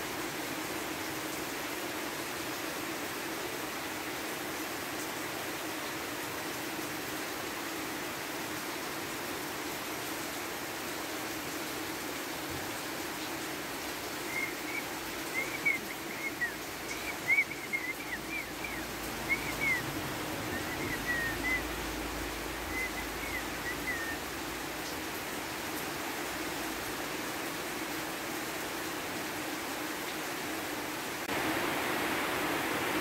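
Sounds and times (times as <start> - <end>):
rain hiss: 0.0 - 33.0
small bird chirping: 14.3 - 19.8.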